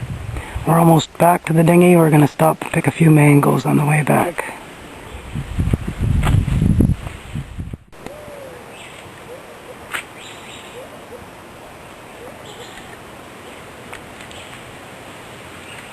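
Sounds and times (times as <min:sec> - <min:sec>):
outdoor hiss: 0:00.0 - 0:15.9
bird hooting: 0:08.0 - 0:11.4, 0:12.1 - 0:13.0.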